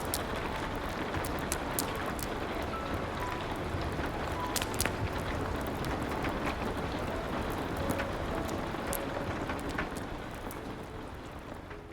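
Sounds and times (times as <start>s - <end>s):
steady rain: 0.0s - 11.9s
wood fire crackling: 0.0s - 11.9s.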